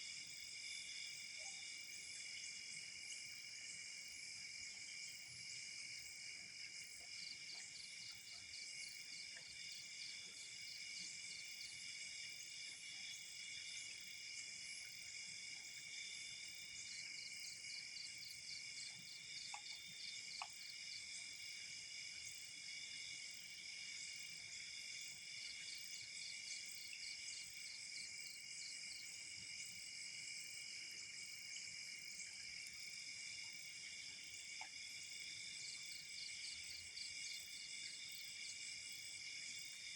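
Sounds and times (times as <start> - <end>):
faint ticks: 18.9 - 20.8, 34.5 - 34.8.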